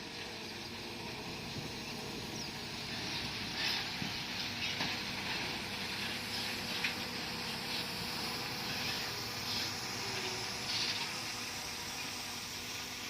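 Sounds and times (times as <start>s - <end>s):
bulldozer diesel engine running: 0.0s - 13.0s
hissing noise: 2.8s - 13.0s.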